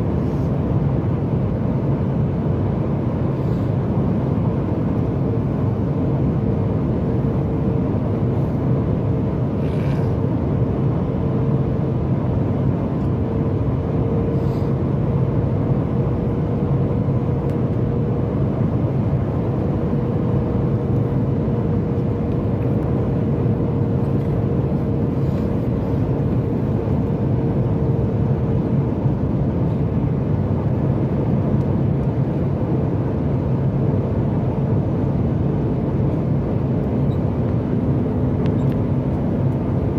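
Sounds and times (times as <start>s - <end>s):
airplane cabin engine and airflow noise: 0.0s - 39.9s
steady cabin hum: 0.0s - 39.9s.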